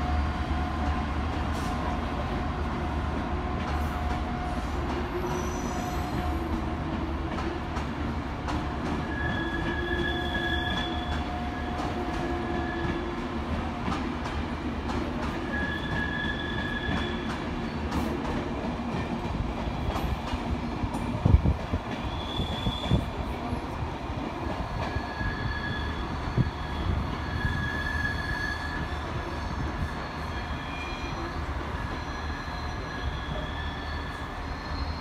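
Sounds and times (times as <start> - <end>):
diesel train rumbling: 0.0 - 35.0
wheel squeal: 9.0 - 13.2, 15.4 - 17.9, 24.9 - 35.0.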